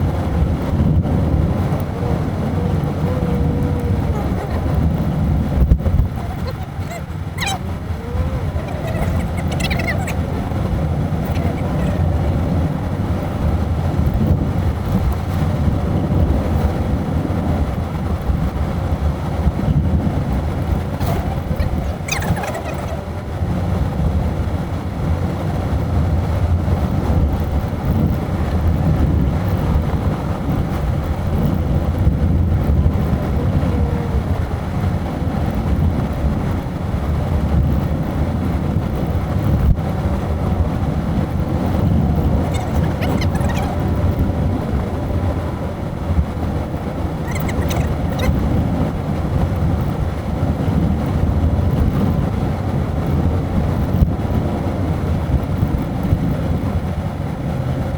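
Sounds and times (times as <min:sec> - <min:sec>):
car road and engine rumble: 0:00.0 - 0:57.9
faint high squeaks: 0:06.0 - 0:10.6, 0:11.2 - 0:12.3, 0:21.0 - 0:23.2, 0:42.0 - 0:44.1, 0:47.2 - 0:48.5.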